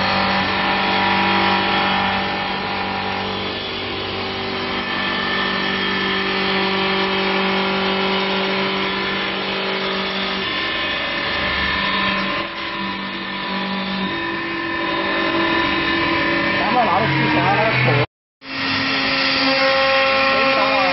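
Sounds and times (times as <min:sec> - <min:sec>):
lathe motor hum and whine: 0:00.0 - 0:20.9.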